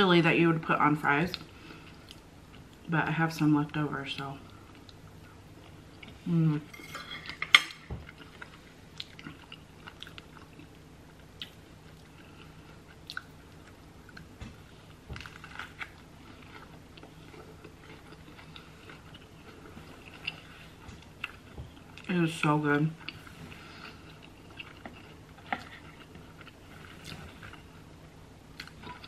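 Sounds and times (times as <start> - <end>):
person chewing food: 7.3 - 22.1, 23.0 - 29.0.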